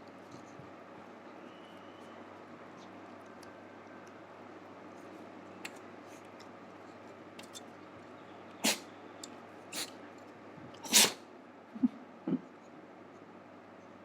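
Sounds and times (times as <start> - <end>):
dog sneezing: 8.6 - 8.9, 9.7 - 10.0, 10.8 - 11.2.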